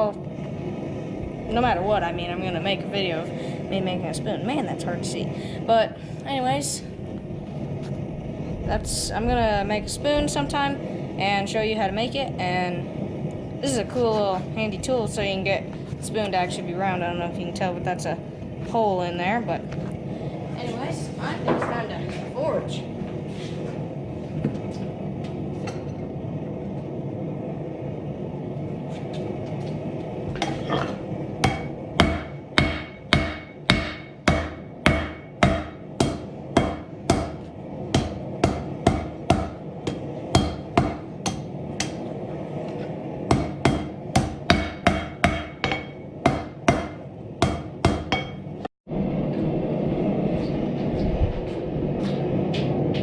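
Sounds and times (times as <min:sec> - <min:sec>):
steady rushing noise: 0:00.0 - 0:53.0
hammer ringing on anvil: 0:43.3 - 0:48.4.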